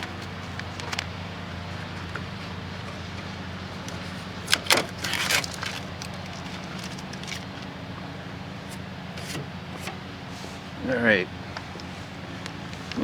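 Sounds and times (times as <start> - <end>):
air conditioner low hum: 0.0 - 13.0
short rattling scrape: 8.6 - 10.6.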